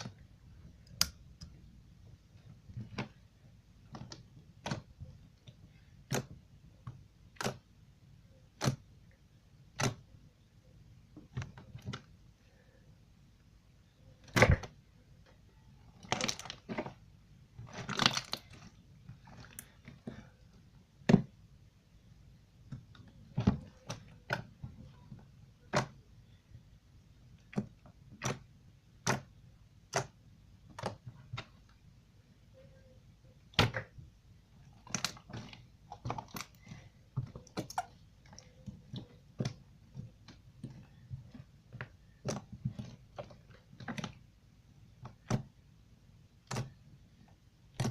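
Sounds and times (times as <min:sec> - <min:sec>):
slime squishing: 0:00.0 - 0:12.7, 0:13.8 - 0:47.9
slime popping and crackling: 0:17.6 - 0:19.8.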